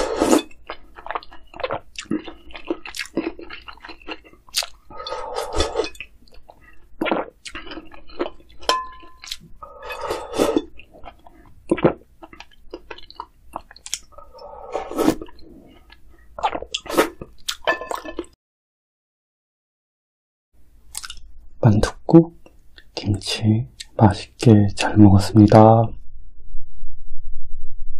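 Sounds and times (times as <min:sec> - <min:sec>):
chewing and wet mouth sounds: 0:00.0 - 0:18.3, 0:20.9 - 0:21.3.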